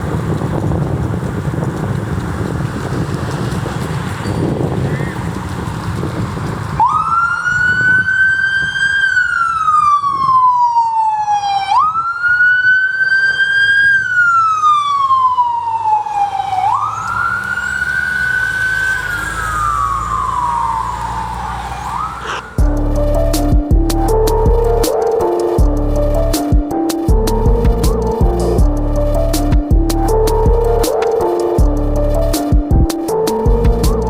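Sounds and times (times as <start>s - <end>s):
vehicle low rumble: 0.0s - 10.7s, 13.6s - 34.0s
siren wailing: 6.8s - 34.0s.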